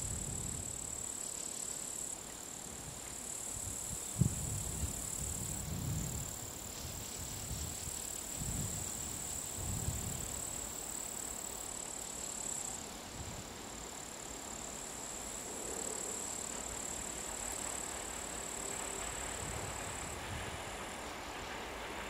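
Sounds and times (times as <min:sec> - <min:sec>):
distant train rumble: 0:00.0 - 0:22.0
wind gusts on microphone: 0:02.8 - 0:10.6, 0:19.0 - 0:22.0.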